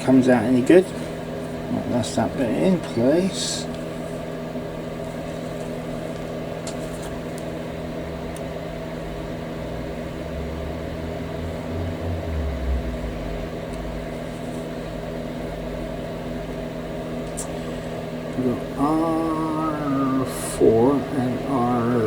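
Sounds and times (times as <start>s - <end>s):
fan motor humming: 0.0s - 22.0s
low rumble: 9.0s - 16.6s.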